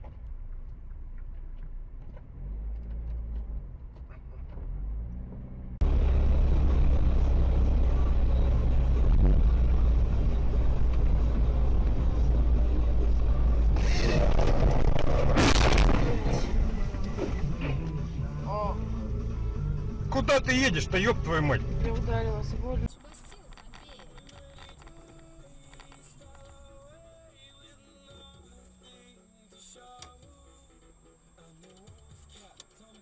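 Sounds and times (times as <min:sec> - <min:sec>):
loud road roar: 0:00.0 - 0:22.9
car engine and road rumble: 0:00.0 - 0:33.0.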